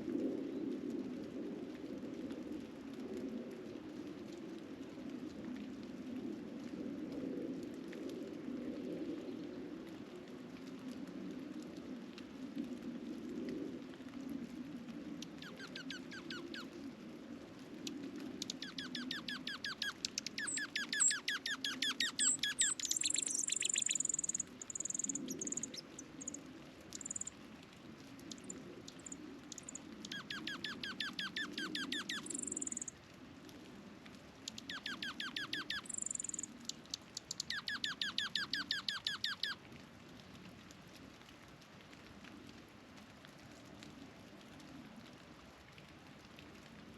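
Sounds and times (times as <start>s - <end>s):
songbirds trilling: 18.6s - 26.4s, 27.0s - 27.3s, 31.9s - 32.9s.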